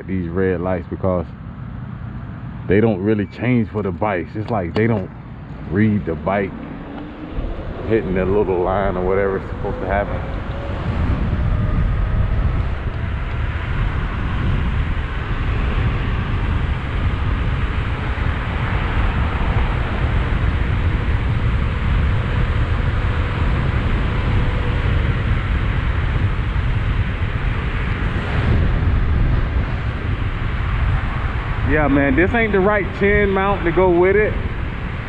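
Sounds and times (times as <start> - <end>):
wind rumble on microphone: 0.0 - 35.0.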